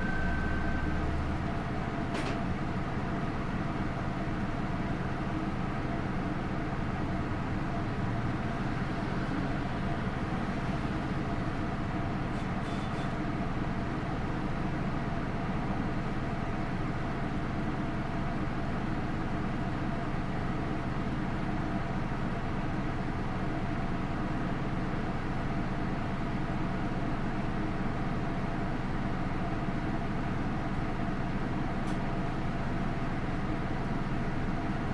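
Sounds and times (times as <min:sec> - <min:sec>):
bus diesel engine running: 0:00.0 - 0:34.9
road and tyre noise: 0:07.7 - 0:13.4.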